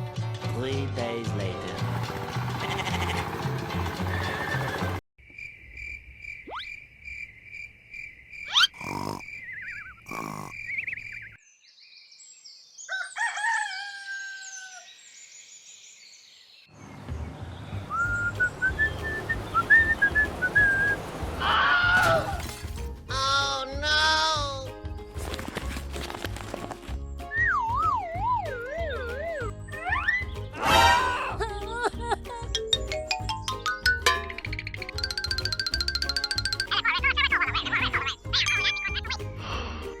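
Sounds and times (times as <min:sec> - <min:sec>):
noisy outdoor background: 0:01.5 - 0:11.7, 0:15.2 - 0:22.9
birds chirping: 0:08.1 - 0:13.0
rooster-like animal call: 0:12.9 - 0:14.9.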